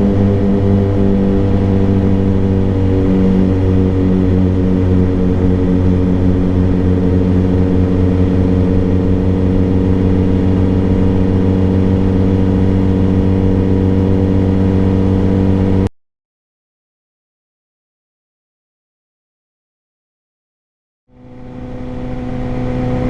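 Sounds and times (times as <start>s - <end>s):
motorcycle engine idling: 0.0s - 15.8s.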